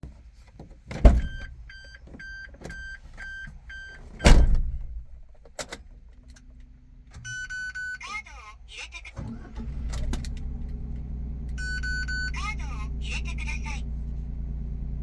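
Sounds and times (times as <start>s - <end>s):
car door slamming: 0.9s - 1.7s, 4.0s - 5.8s
low steady hum: 0.9s - 15.0s
warning chime beeping: 7.2s - 8.1s, 11.6s - 13.8s.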